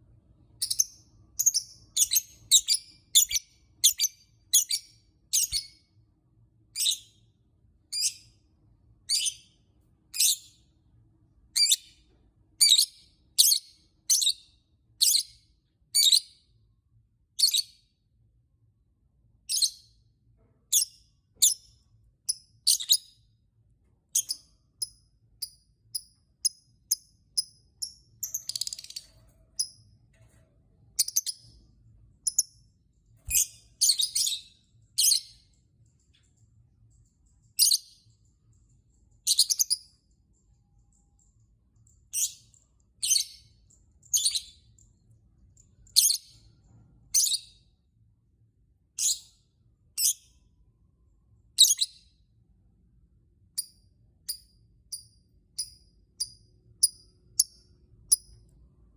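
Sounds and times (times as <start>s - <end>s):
lovebird chirping: 0.6s - 5.9s, 6.7s - 7.3s, 7.9s - 8.4s, 9.0s - 10.7s, 11.5s - 12.0s, 12.6s - 15.4s, 16.0s - 16.5s, 17.4s - 17.8s, 19.5s - 20.0s, 20.7s - 23.3s, 24.1s - 29.8s, 31.0s - 31.6s, 32.2s - 32.6s, 33.2s - 35.5s, 37.5s - 38.1s, 39.2s - 40.0s, 41.8s - 44.9s, 45.6s - 46.5s, 47.1s - 47.7s, 49.0s - 49.4s, 50.0s - 50.4s, 51.5s - 52.2s, 53.6s - 58.4s.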